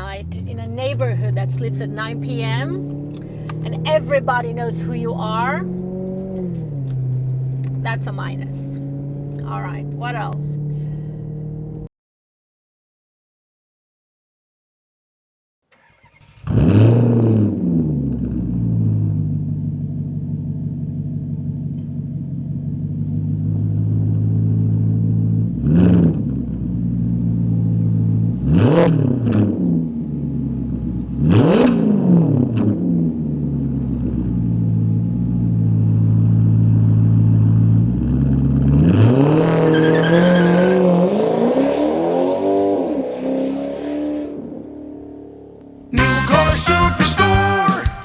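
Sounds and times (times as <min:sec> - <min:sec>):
car engine idling: 0:00.0 - 0:11.9, 0:18.2 - 0:25.7, 0:33.1 - 0:38.8, 0:44.6 - 0:48.0
car engine starting: 0:00.0 - 0:11.9, 0:15.7 - 0:48.0
engine revving: 0:00.0 - 0:11.9, 0:15.7 - 0:19.9, 0:21.2 - 0:48.0.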